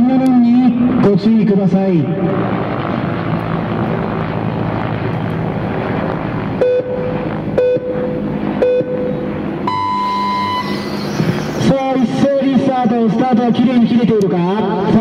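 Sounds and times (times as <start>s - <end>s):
steady background hum: 0.0s - 15.0s
electronic start beeps: 6.6s - 13.8s.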